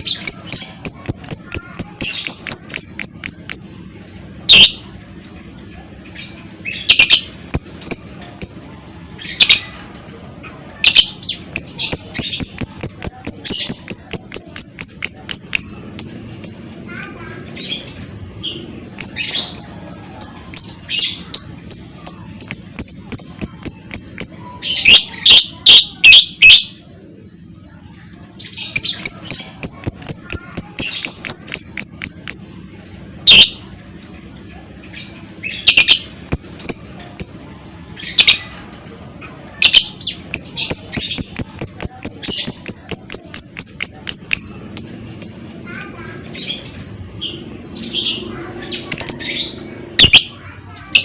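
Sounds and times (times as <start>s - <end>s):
bird chirping: 0.0s - 3.8s, 10.8s - 26.8s, 28.4s - 32.6s, 35.0s - 37.4s, 39.6s - 51.0s
harsh bird chattering: 0.0s - 4.9s, 5.8s - 9.8s, 10.4s - 33.7s, 34.6s - 51.0s.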